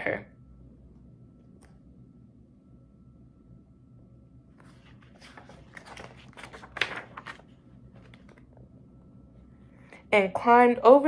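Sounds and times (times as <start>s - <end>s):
paper page rustling: 4.6s - 8.5s.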